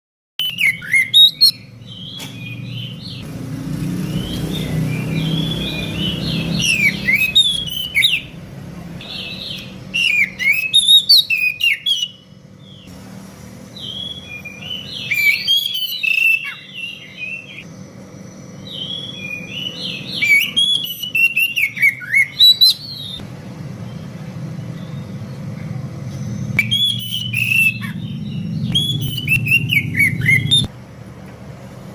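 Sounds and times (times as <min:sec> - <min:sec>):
birds singing whistled phrases: 0:00.4 - 0:03.2, 0:03.8 - 0:08.4, 0:09.0 - 0:12.9, 0:13.8 - 0:23.2, 0:23.8 - 0:30.7
steady low rumble: 0:23.2 - 0:31.9.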